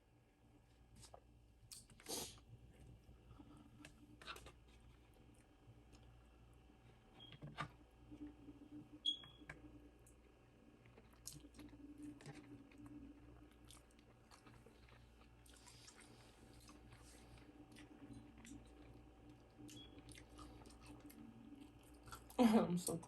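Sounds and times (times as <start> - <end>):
chewing food: 10.1 - 23.0.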